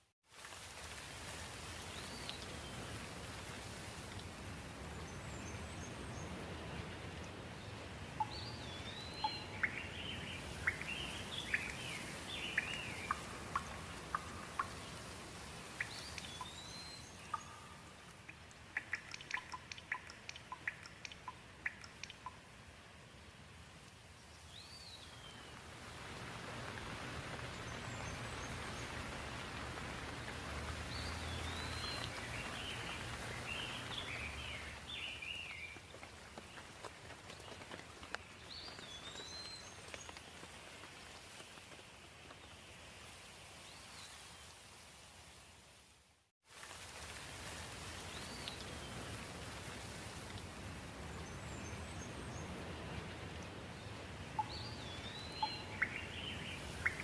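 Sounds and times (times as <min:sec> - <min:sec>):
steady rain: 0:00.0 - 0:57.0
small birds chirping: 0:04.9 - 0:23.3, 0:27.3 - 0:41.6, 0:53.8 - 0:57.0
sharp ticks: 0:18.3 - 0:22.4.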